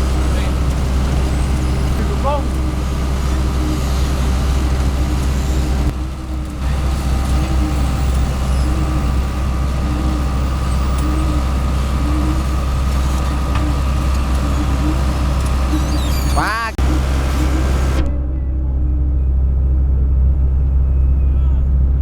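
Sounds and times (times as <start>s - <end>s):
heavy diesel engines running: 0.0s - 22.0s.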